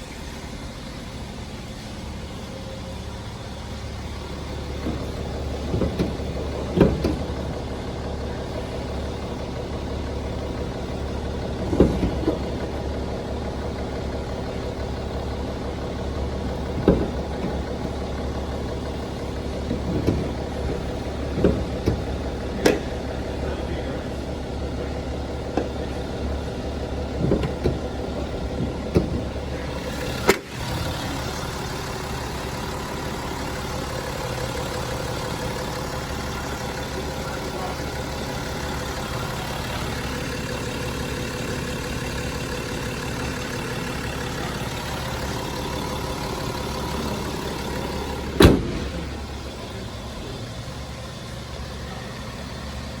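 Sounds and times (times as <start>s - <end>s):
diesel engine idling: 0.0s - 53.0s
engine knocks: 0.0s - 53.0s
sharp thump: 48.3s - 49.1s.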